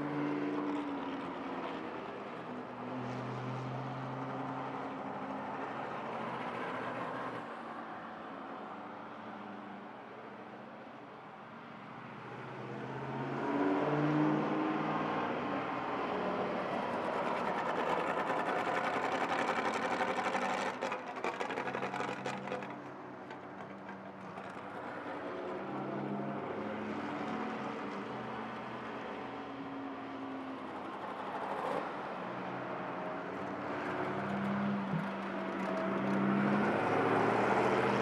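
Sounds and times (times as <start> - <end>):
car engine accelerating through gears: 33.7 - 38.0.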